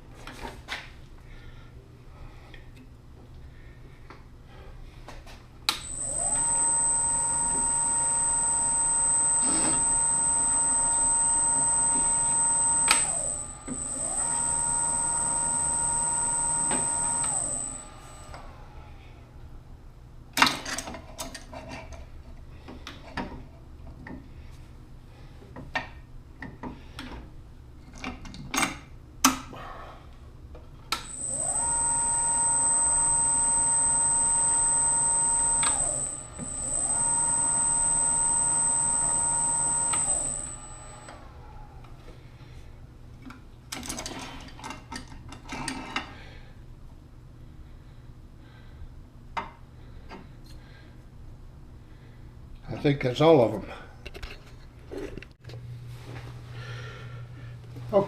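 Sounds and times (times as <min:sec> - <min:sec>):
power tool motor whining: 0:05.7 - 0:18.6, 0:31.0 - 0:41.4.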